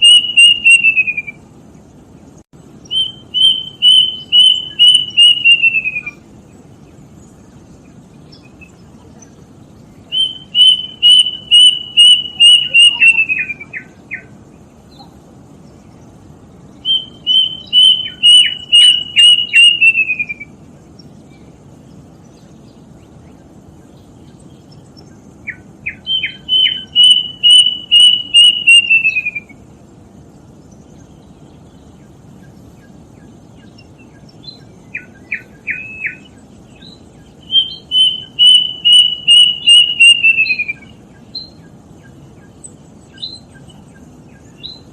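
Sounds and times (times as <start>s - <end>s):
cuckoo whistled notes: 0.0s - 1.4s, 2.9s - 6.2s, 10.1s - 14.3s, 16.9s - 20.5s, 26.0s - 29.6s, 37.5s - 40.9s.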